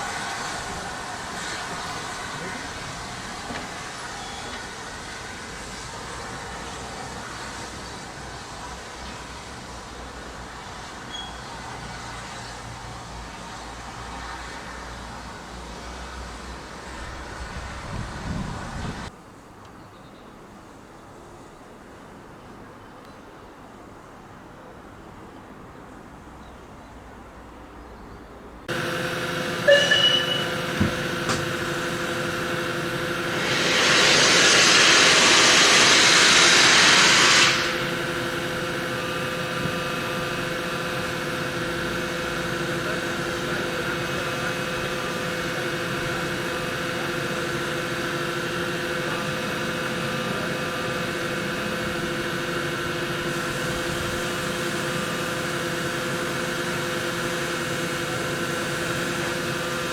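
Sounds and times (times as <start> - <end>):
steam hissing: 0.0 - 11.0, 28.7 - 59.9
locomotive humming: 0.0 - 13.8, 28.6 - 59.9.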